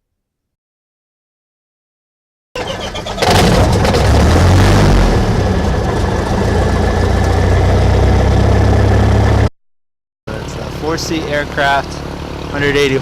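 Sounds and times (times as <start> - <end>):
piston aircraft engine starting: 2.6 - 9.2.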